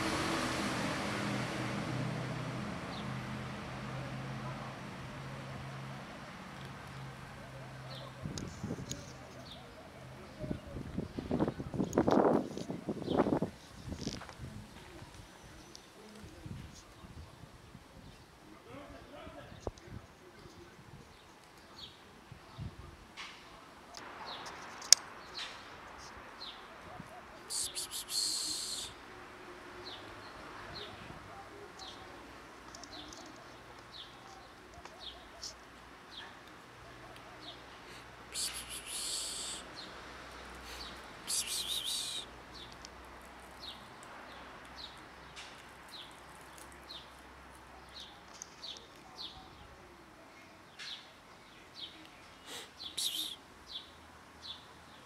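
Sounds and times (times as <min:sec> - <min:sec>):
small birds chirping: 0:23.9 - 0:29.0, 0:29.8 - 0:55.0
small bird chirping: 0:40.7 - 0:42.9.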